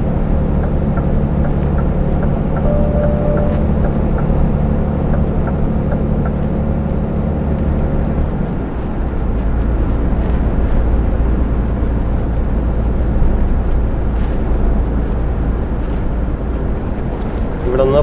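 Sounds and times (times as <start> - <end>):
light regular ticking: 0.0 - 8.8
truck engine and road noise: 0.0 - 18.0.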